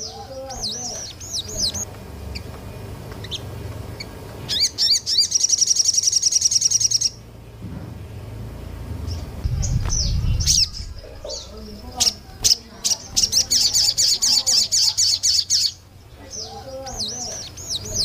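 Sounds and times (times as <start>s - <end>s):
faint low hum: 0.0s - 18.0s
songbird chirping and trilling: 0.0s - 18.0s.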